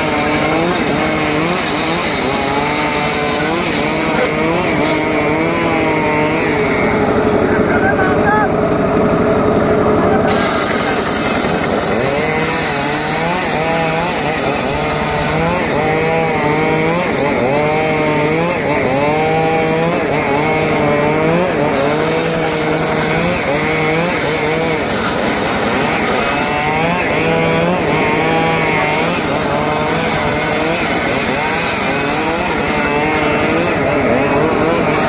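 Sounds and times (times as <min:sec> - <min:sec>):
chainsaw cutting wood: 0:00.0 - 0:35.0.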